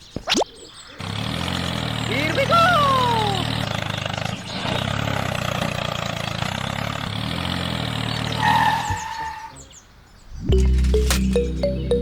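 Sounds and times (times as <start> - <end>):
tractor engine running: 1.0 - 8.4, 10.4 - 12.0
short high tone: 10.5 - 12.0.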